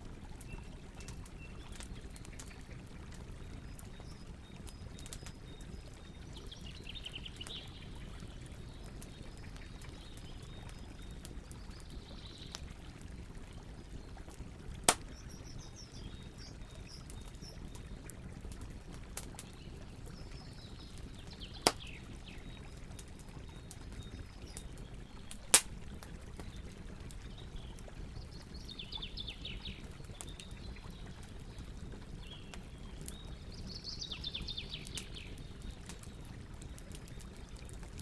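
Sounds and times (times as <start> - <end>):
campfire crackling: 0.0 - 38.0
fire pops: 14.6 - 15.4, 21.2 - 22.1, 23.8 - 26.7.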